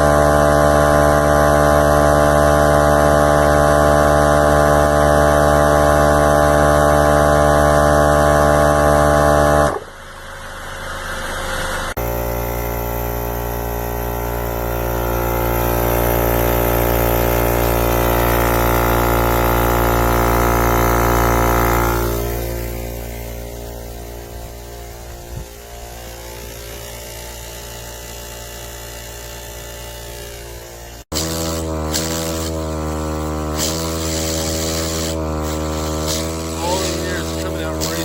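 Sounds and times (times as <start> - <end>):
air compressor buzzing hum: 0.0 - 38.0.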